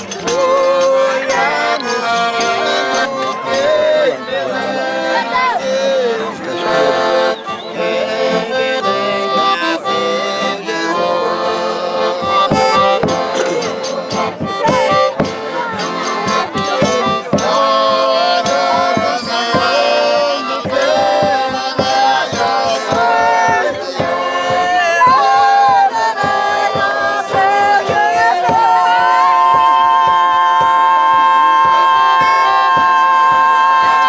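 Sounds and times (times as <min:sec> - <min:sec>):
accordion: 0:00.0 - 0:34.0
people singing: 0:00.0 - 0:34.0
percussion strikes: 0:00.0 - 0:34.0.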